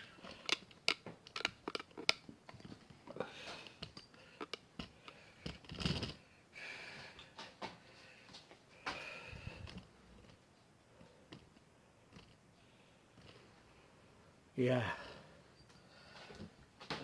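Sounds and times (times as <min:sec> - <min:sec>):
small clicks and light knocks: 0:11.0 - 0:12.4.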